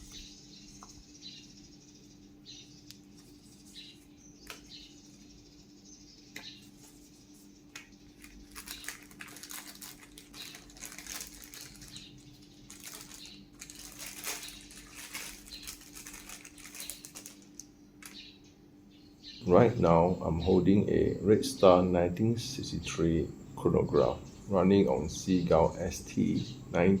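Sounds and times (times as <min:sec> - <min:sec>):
faint steady hum: 0:00.0 - 0:27.0
packaging crinkling: 0:08.1 - 0:18.2.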